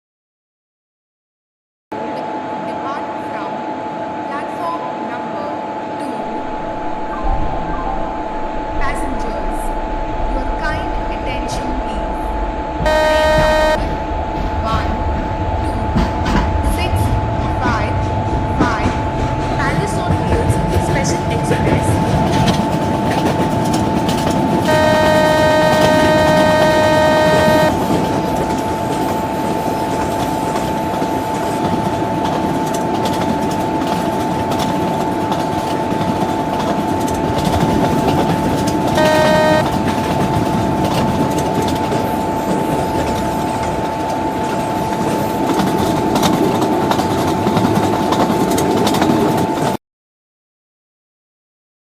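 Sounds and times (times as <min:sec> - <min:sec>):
electric locomotive whine: 0:02.0 - 0:49.8
train wheels rumbling: 0:06.2 - 0:49.8
locomotive horn blasts: 0:12.8 - 0:14.0, 0:24.6 - 0:31.2, 0:37.4 - 0:44.4.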